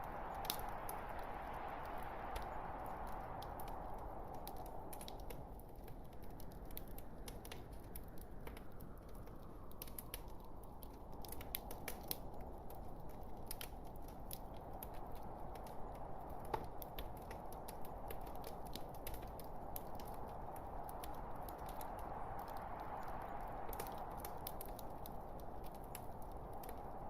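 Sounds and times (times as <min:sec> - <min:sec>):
logs crackling and popping: 0:00.0 - 0:27.0
low rush of flame: 0:00.0 - 0:27.0.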